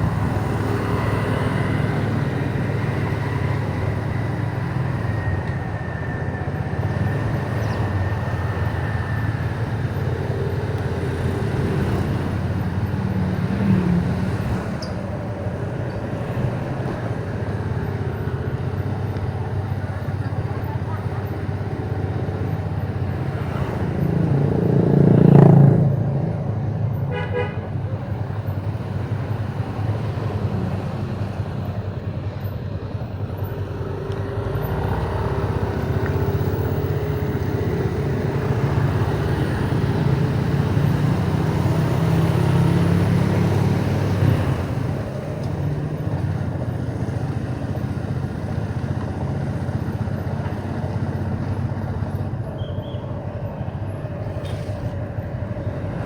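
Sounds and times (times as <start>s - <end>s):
motorbike engine running: 0.0s - 56.0s
traffic noise: 0.0s - 56.0s
horn toot: 27.1s - 28.0s.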